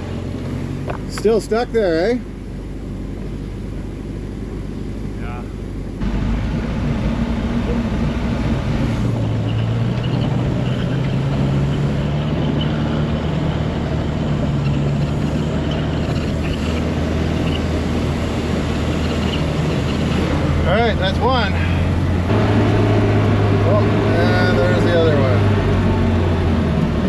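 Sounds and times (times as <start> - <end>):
snowcat engine running: 0.0 - 27.0.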